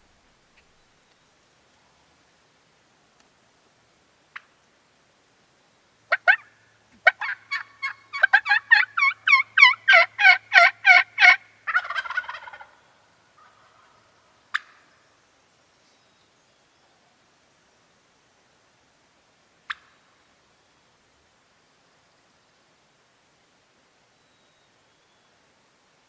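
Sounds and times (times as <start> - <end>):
turkey cluck: 6.1 - 12.8, 13.4 - 14.8, 19.7 - 19.9
turkey gobbling: 6.1 - 12.8, 13.4 - 14.8
turkey yelps: 6.1 - 12.8.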